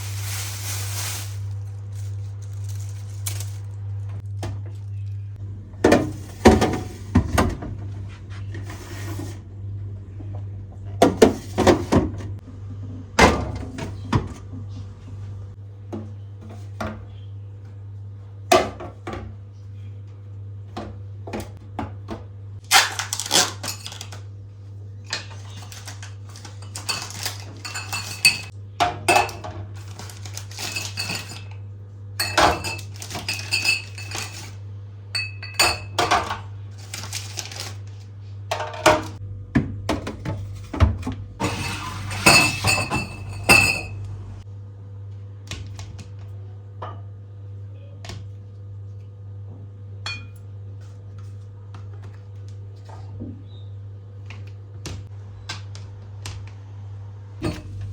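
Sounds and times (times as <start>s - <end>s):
steady low hum: 0.0s - 18.4s, 38.0s - 45.5s, 56.8s - 57.9s
dishes knocking and clinking: 38.5s - 44.0s.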